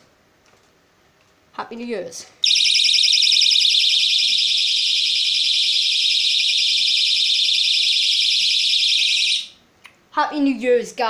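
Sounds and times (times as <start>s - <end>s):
smoke alarm beeping: 2.4s - 9.6s.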